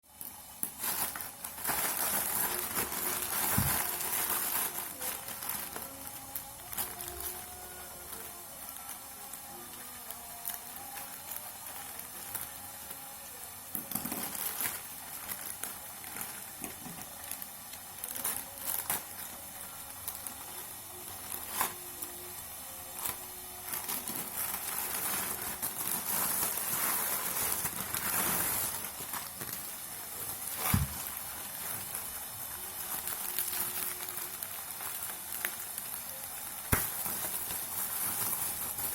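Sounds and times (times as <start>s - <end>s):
packaging crinkling and rustling: 0.1s - 38.9s.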